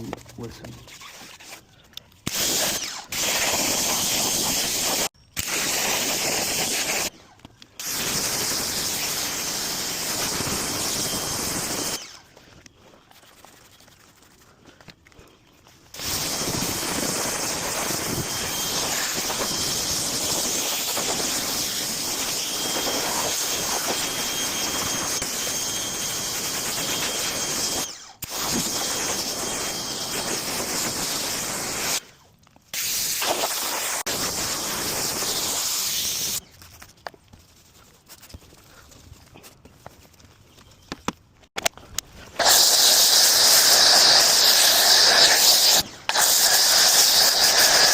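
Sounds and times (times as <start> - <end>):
high-pressure spray jet hissing: 2.3 - 7.1, 16.0 - 32.0, 32.8 - 36.4, 42.4 - 47.9.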